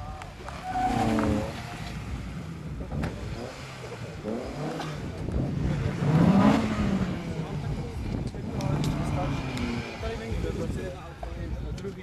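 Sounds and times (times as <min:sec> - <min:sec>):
car engine revving: 0:00.4 - 0:10.9.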